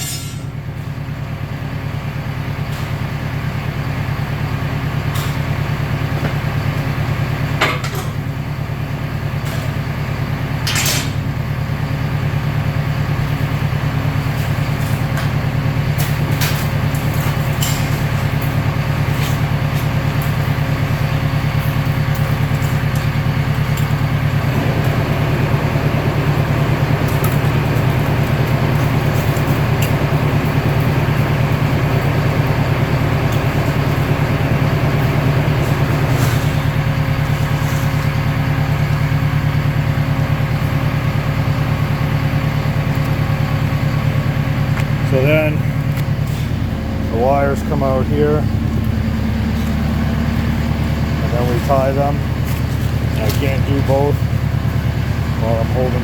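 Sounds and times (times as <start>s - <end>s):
recycling baler humming: 0.0s - 56.0s.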